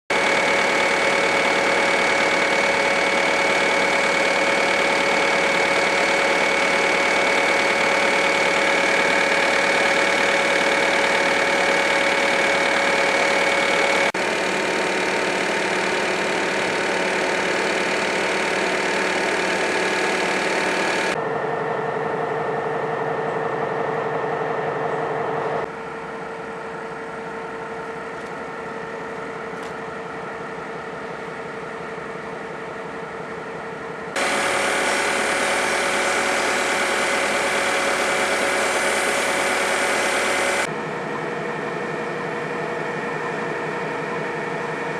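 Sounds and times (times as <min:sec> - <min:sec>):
diesel locomotive engine humming: 0:00.1 - 0:44.9.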